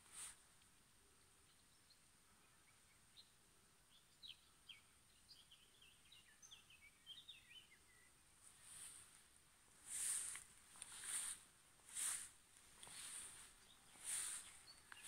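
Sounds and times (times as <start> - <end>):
bird chirping: 1.2 - 9.0, 12.8 - 15.0.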